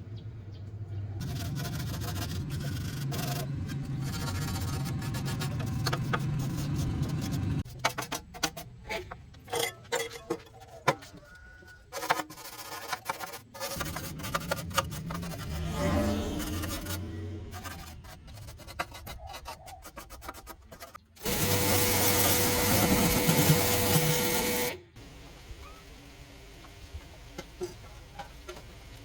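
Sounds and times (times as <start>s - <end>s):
power tool abrading metal: 21.2s - 24.8s.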